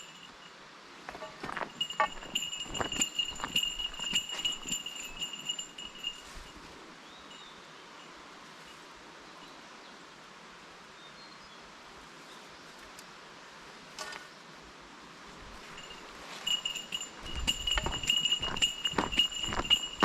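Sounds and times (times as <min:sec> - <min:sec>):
small bell jingling: 0:00.0 - 0:06.7, 0:15.6 - 0:20.0
outdoor background hiss: 0:00.0 - 0:20.0.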